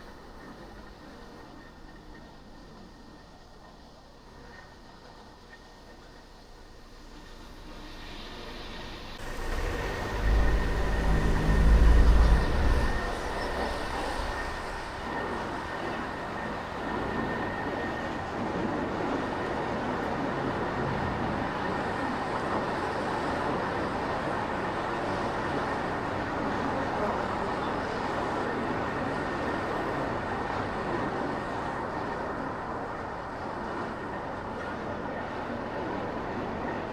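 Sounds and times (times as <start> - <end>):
road hiss: 6.7 - 15.7
heavy low rumble: 9.2 - 15.4.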